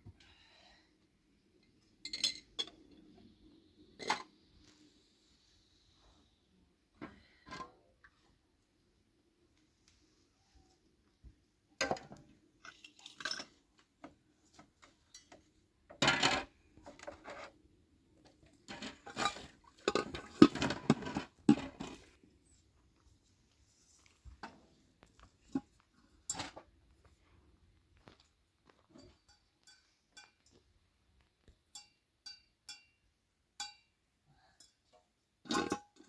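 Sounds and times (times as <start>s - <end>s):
dishes and cutlery clattering: 2.0s - 2.8s, 18.7s - 22.0s, 35.5s - 36.0s.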